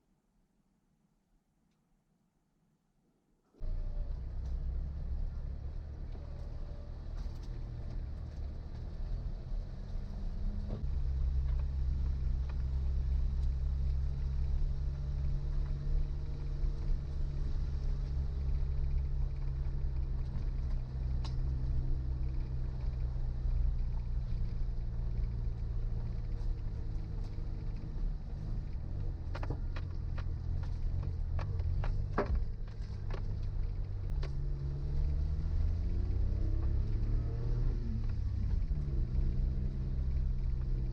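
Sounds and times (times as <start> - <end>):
car engine running at low revs: 3.6 - 40.9
sharp knocks and clicks: 29.0 - 34.4.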